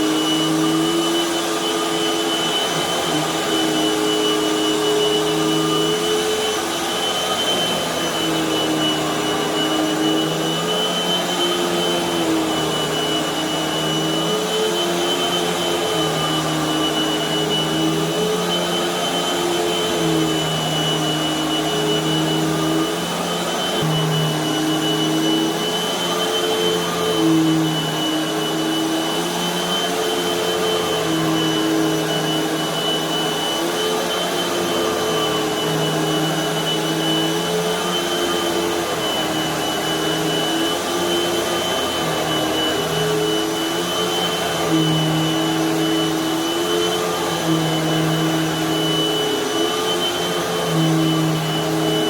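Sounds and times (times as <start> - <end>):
vacuum cleaner on carpet: 0.0 - 52.0.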